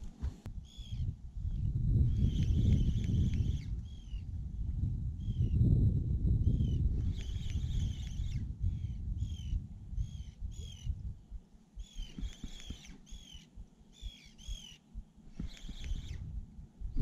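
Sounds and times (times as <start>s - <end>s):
bird squeaky calls: 0.6s - 1.1s, 2.1s - 4.2s, 6.5s - 10.9s, 11.8s - 16.2s
low rumble: 16.2s - 17.0s.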